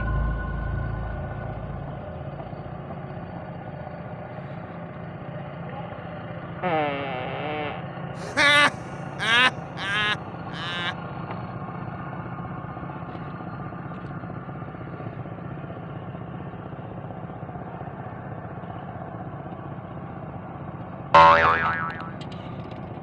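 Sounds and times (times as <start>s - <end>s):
low motor hum: 0.0s - 4.7s
high-pitched sliding calls: 8.2s - 10.9s.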